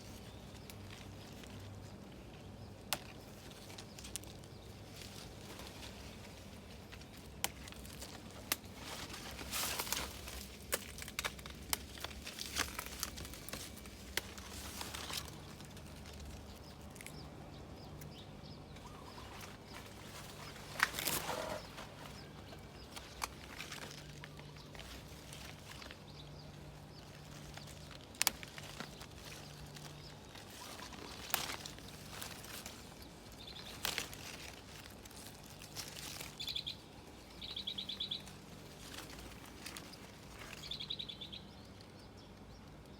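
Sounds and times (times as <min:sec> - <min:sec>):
leaves rustling: 0:00.0 - 0:17.5, 0:18.6 - 0:41.5
plant stems snapping: 0:02.8 - 0:06.0, 0:06.8 - 0:17.2, 0:18.9 - 0:26.1, 0:27.0 - 0:36.6.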